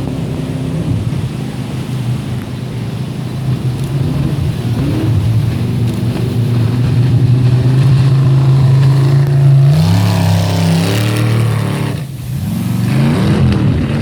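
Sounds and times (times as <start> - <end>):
jet boat engine at high revs: 0.0 - 14.0.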